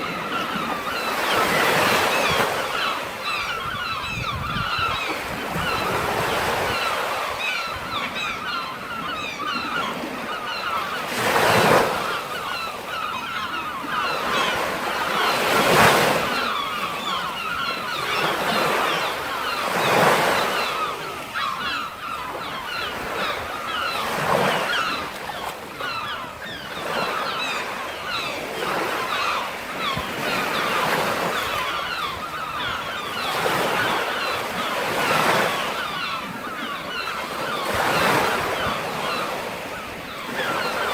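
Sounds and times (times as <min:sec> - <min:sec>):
sea surf breaking on shore: 0:09.0 - 0:40.9.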